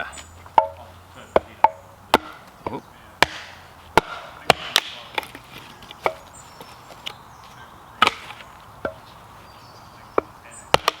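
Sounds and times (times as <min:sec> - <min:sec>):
axe chopping firewood: 0:00.5 - 0:07.2, 0:08.0 - 0:09.0, 0:10.2 - 0:11.0.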